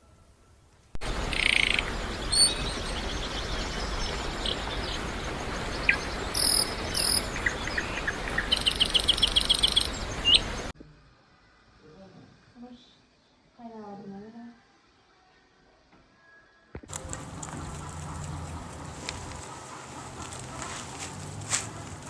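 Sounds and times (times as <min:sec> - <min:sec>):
steady hiss: 0:00.0 - 0:10.7
bird chirps: 0:01.0 - 0:10.7
fast bird trill: 0:01.0 - 0:10.7.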